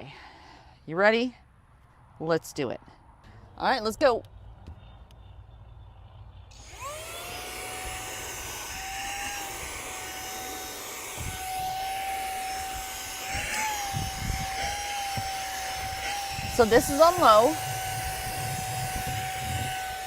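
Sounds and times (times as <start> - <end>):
handheld vacuum motor whine: 6.5 - 20.0.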